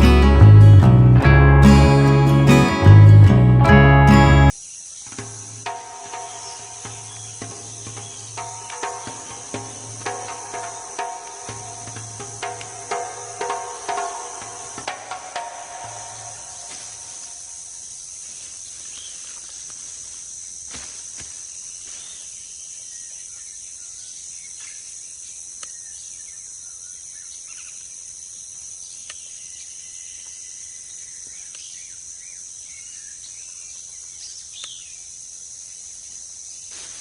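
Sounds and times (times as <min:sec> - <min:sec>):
insects droning: 0:03.8 - 0:37.0
bird chirps: 0:04.9 - 0:17.4.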